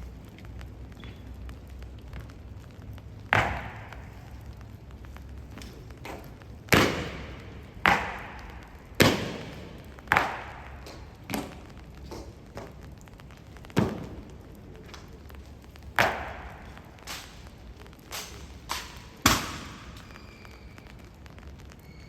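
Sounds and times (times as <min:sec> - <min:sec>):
sharp stamps with echo: 0:15.9 - 0:17.5, 0:18.1 - 0:20.2.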